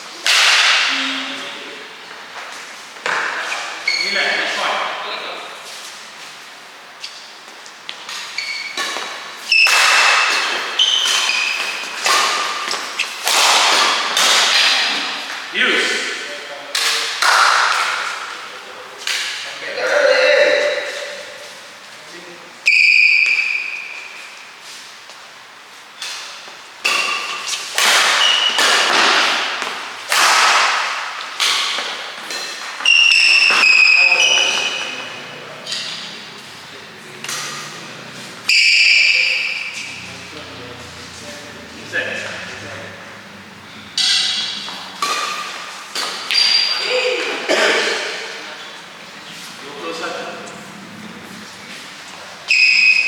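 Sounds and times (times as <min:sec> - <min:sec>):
racket striking shuttlecock: 0:00.2 - 0:00.9, 0:07.9 - 0:15.2, 0:26.0 - 0:40.4, 0:42.5 - 0:46.8
shoes squeaking on court floor: 0:02.0 - 0:05.0, 0:05.6 - 0:15.2, 0:22.6 - 0:30.0, 0:31.2 - 0:53.0.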